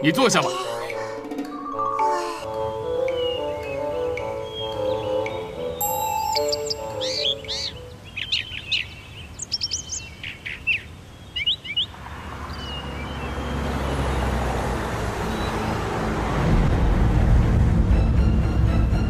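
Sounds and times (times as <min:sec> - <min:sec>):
birds chirping: 0:00.0 - 0:14.4
noisy rumbling: 0:15.9 - 0:19.0.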